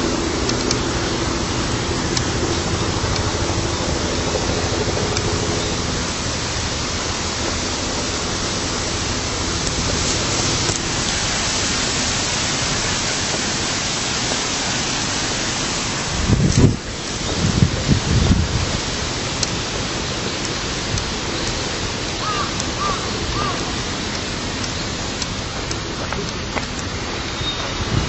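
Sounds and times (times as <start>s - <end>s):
rushing water: 0.0s - 28.0s.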